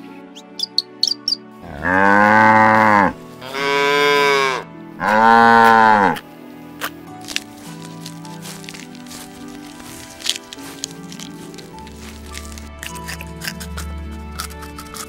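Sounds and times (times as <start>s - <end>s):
cattle mooing: 1.6s - 6.2s.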